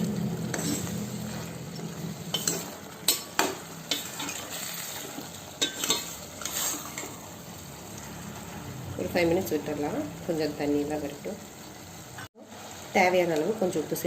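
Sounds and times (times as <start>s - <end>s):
chicken sizzling in a pan: 0.0s - 14.0s
spoon scraping and clinking pan: 0.5s - 1.0s, 2.3s - 7.2s.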